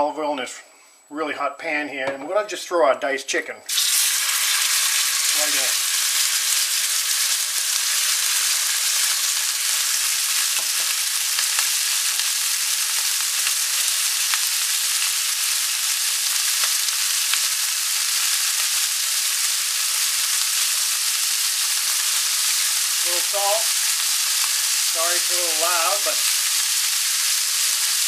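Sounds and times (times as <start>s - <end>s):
oil popping: 3.7s - 9.4s
chicken sizzling in hot oil: 3.7s - 28.0s.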